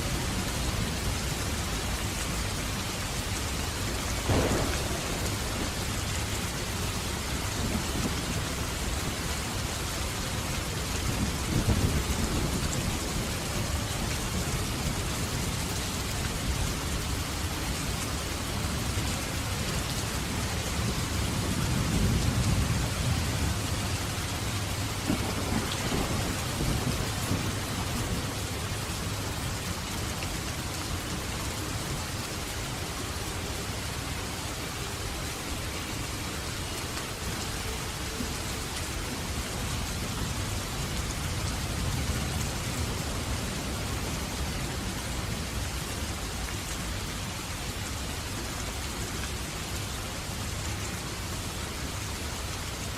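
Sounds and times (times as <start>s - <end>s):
heavy rain falling: 0.0s - 52.9s
low rolling thunder: 4.2s - 9.6s, 10.6s - 15.7s, 20.5s - 29.9s.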